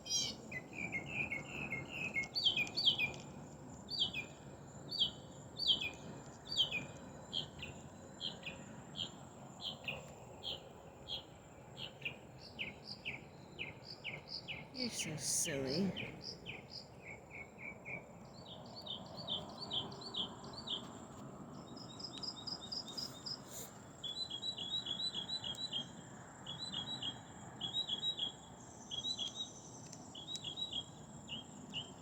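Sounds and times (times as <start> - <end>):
small birds chirping: 0.0 - 3.2.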